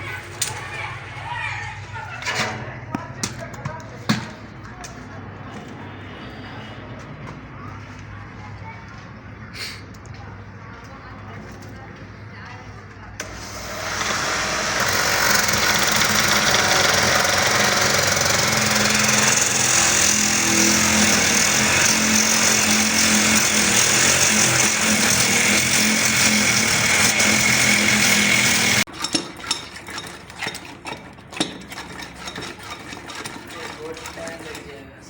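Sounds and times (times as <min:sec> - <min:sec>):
power tool whining: 0:13.2 - 0:28.9.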